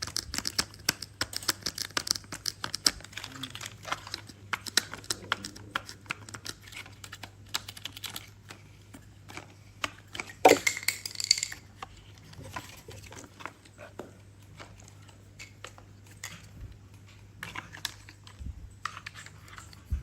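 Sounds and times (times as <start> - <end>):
toy pieces clicking: 10.2 - 11.8.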